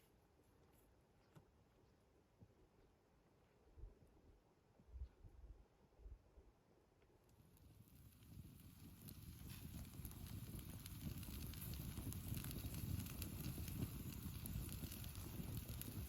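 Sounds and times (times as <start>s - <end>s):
campfire crackling: 7.3s - 16.0s.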